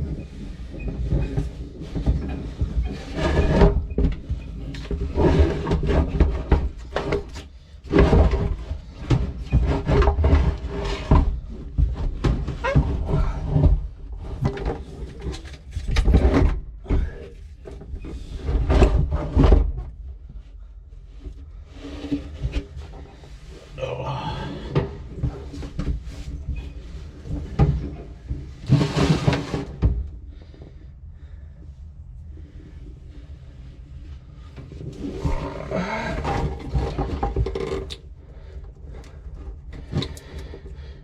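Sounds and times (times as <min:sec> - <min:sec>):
scraping: 0:34.3 - 0:38.6.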